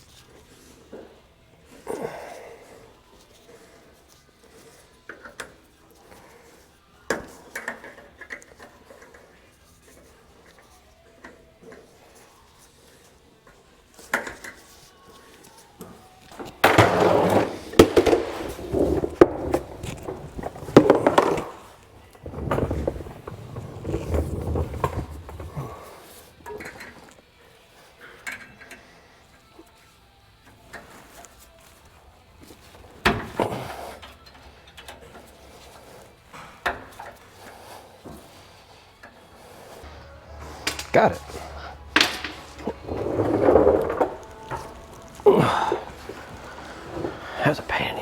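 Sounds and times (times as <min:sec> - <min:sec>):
metal scraping and clanking: 0:39.7 - 0:48.0.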